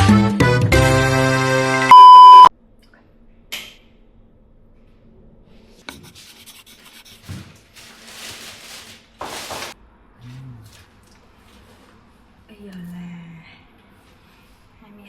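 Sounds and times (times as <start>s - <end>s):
loud electronic beep: 1.9s - 2.5s.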